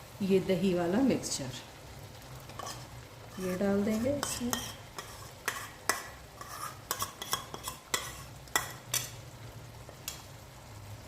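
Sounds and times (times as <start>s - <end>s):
masala sizzling: 0.0s - 11.0s
spoon scraping a pan: 2.5s - 9.3s.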